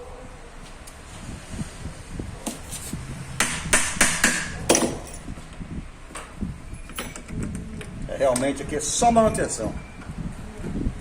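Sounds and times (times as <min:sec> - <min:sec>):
metallic knocks and clinks: 0:04.7 - 0:05.3, 0:06.8 - 0:07.4.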